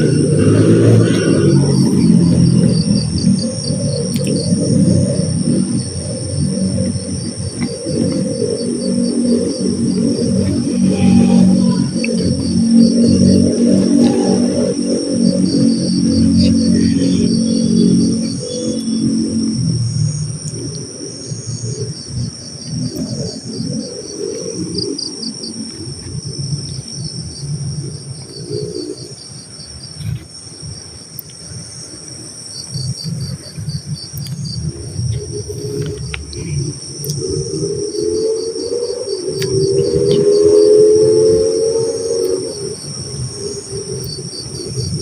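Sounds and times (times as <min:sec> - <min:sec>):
low rising tone: 0:00.0 - 0:21.5
low rumble: 0:00.0 - 0:29.1
crickets chirping: 0:00.0 - 0:45.0.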